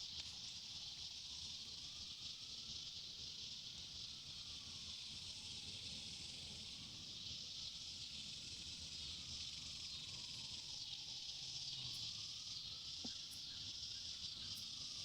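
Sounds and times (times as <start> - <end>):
insects chirring: 6.2 - 15.0.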